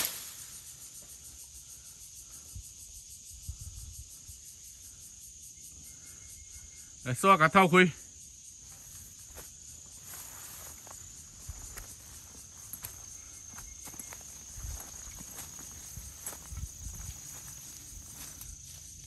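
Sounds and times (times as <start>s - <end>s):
insects droning: 0.0s - 19.0s
rustling through undergrowth: 8.6s - 19.0s.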